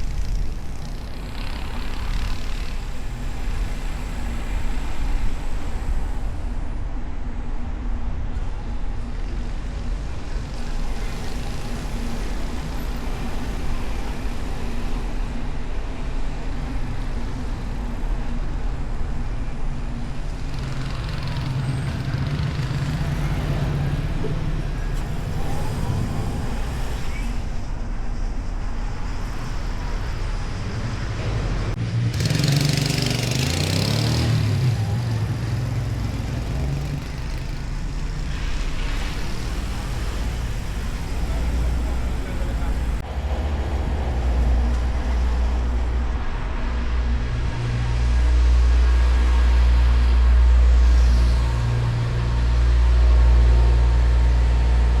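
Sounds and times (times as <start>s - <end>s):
engine and road rumble: 0.0s - 55.0s
surrounding traffic: 0.0s - 55.0s
vehicle passing by: 20.2s - 55.0s.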